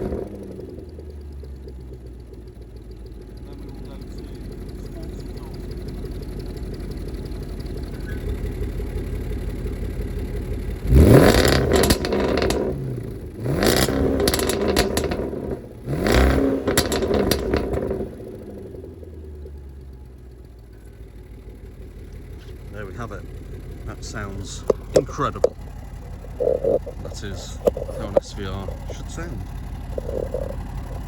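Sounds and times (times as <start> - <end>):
car engine idling and revving: 0.0 - 31.0
exhaust crackling: 0.0 - 31.0.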